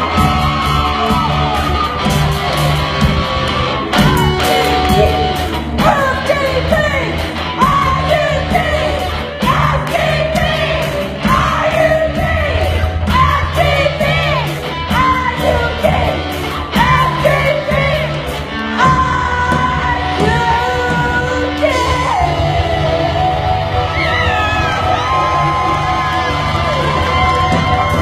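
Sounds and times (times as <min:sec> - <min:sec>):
steady drum beat: 0:00.0 - 0:22.1
bass: 0:00.0 - 0:28.0
electric guitar: 0:00.0 - 0:28.0
woman singing: 0:04.5 - 0:24.3.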